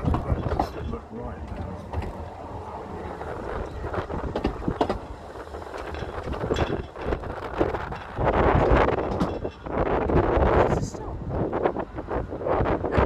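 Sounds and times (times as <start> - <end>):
clanks and knocks of couplings: 0.0 - 2.4, 3.2 - 9.8
railway coach rumbling on track: 0.0 - 13.0
wind gust on microphone: 0.0 - 13.0.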